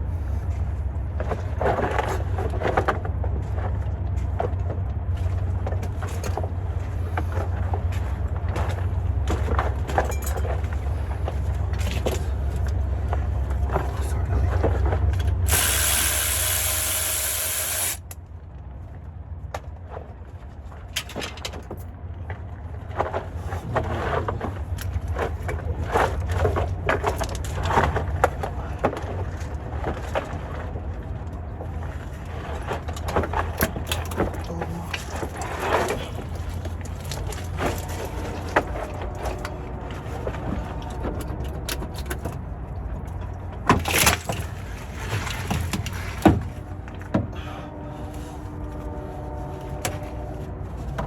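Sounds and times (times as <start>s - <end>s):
steady low hum: 0.0s - 19.6s, 46.4s - 51.0s.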